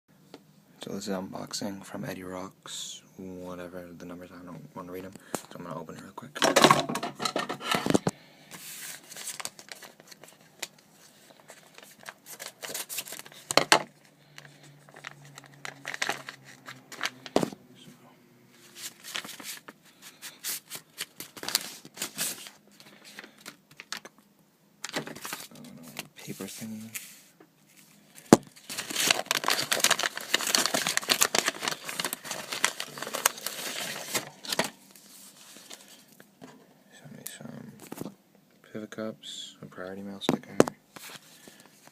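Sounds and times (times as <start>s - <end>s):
paper packaging crinkling and tearing: 7.7s - 17.5s, 18.6s - 24.2s, 24.8s - 36.1s.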